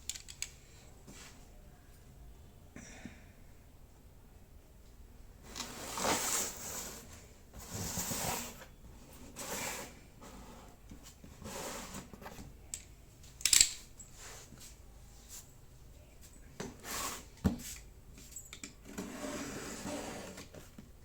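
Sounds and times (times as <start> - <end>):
rustling or scraping bursts: 5.5 - 8.7.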